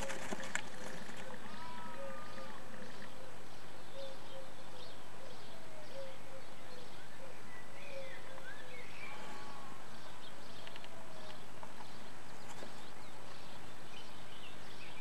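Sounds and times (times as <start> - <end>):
bird calls: 0.0 - 15.0.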